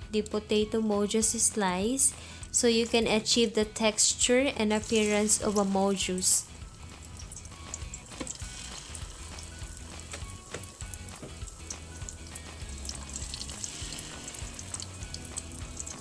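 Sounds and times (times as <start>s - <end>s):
potato slices deep-frying in oil: 1.4s - 16.0s.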